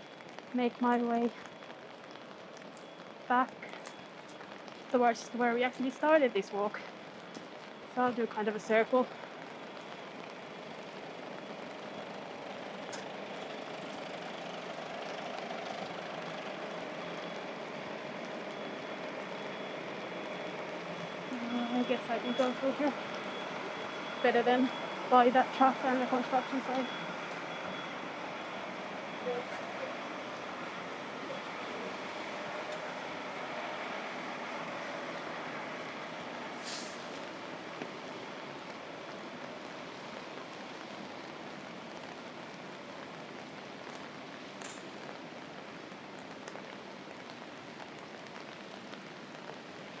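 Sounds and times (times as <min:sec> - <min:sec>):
city traffic noise: 0:00.0 - 0:50.0
rain hiss: 0:00.0 - 0:50.0
short sharp hiss: 0:36.6 - 0:37.2.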